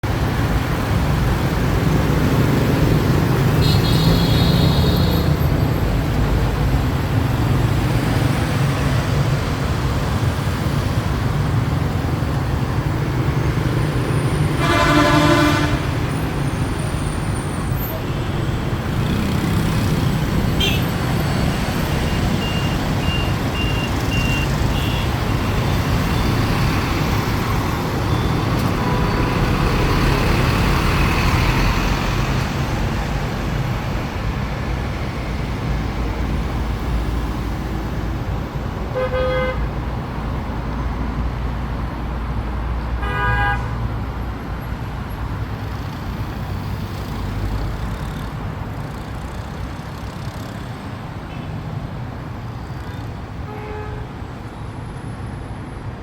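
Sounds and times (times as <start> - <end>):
road traffic passing: 0.0 - 56.0
car horn toots: 14.6 - 16.0.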